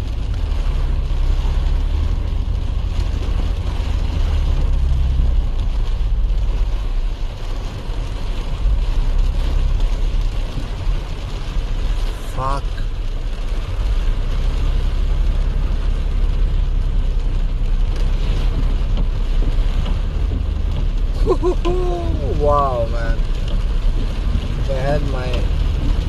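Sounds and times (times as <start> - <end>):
low engine rumble: 0.0 - 26.0
water washing: 0.0 - 26.0.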